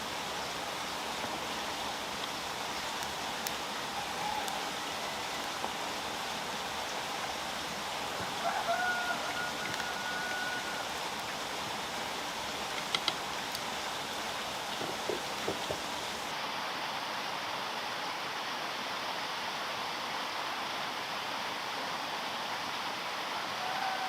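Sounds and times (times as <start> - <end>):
steady rain-like hiss: 0.0 - 24.0
rooster crowing: 3.9 - 5.7, 8.1 - 11.0, 23.3 - 24.0.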